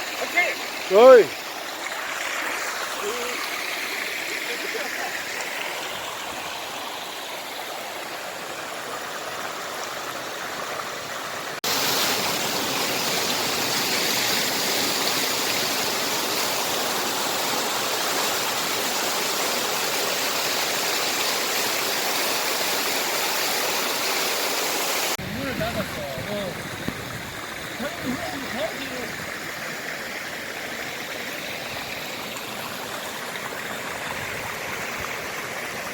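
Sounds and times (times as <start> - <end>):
stream water rushing over rocks: 0.0 - 35.9.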